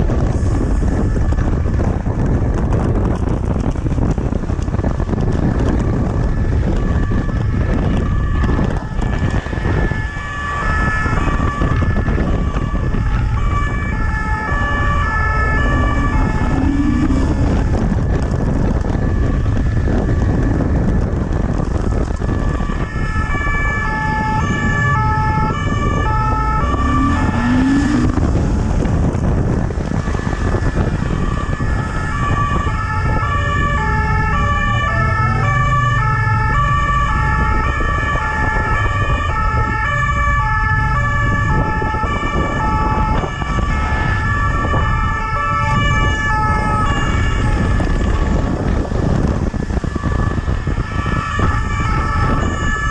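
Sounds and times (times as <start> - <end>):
traffic rumble: 0.0 - 52.9
wind: 0.0 - 52.9
two-tone siren: 5.0 - 21.1, 21.7 - 52.9
steady high tone: 24.4 - 28.2.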